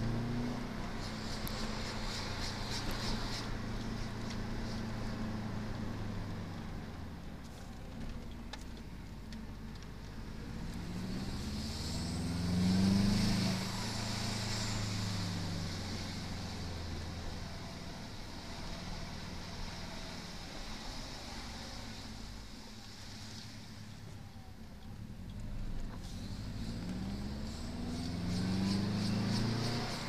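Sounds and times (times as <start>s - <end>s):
car engine revving inside cabin: 0.0s - 1.8s, 10.2s - 19.9s, 24.8s - 30.0s.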